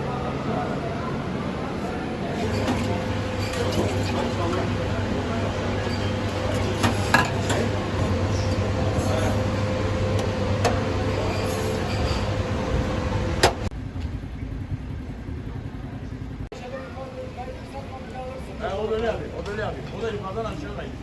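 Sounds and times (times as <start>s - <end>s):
machine hum: 0.0s - 13.8s
metal utensils clinking: 2.4s - 13.5s.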